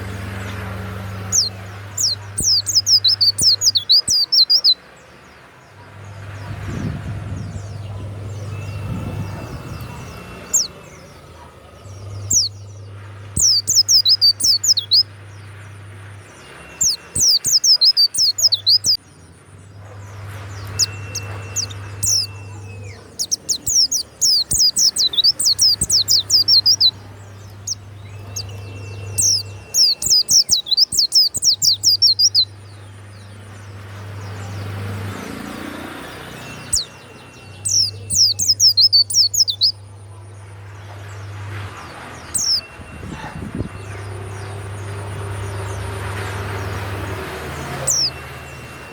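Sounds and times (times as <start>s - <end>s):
bird chirping trills: 0.0s - 48.9s.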